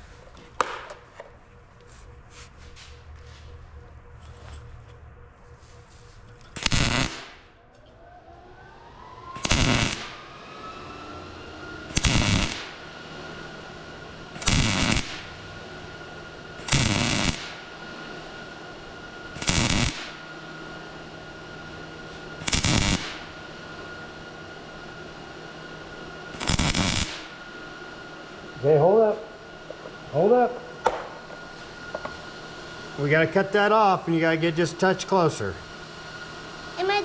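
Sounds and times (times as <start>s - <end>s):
faint steady whine: 0.0s - 37.0s
welding arc crackling: 6.6s - 7.5s, 9.3s - 10.2s, 11.8s - 12.9s, 14.3s - 15.5s, 16.4s - 17.7s, 19.2s - 20.3s, 22.4s - 23.4s, 26.3s - 27.4s.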